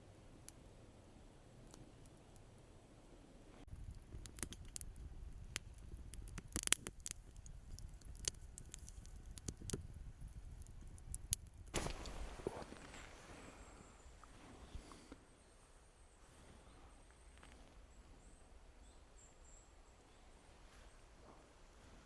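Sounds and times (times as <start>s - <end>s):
sharp clicks and crackles: 3.7s - 12.2s
rustling scrape: 11.8s - 13.6s.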